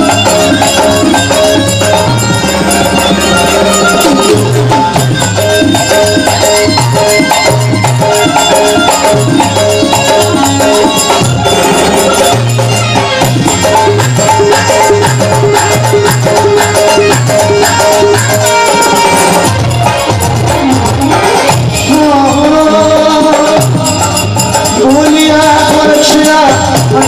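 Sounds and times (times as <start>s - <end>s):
pulsing bass line: 0.0s - 25.5s
held-note melody: 0.0s - 26.4s
jingling hand percussion: 0.0s - 27.0s.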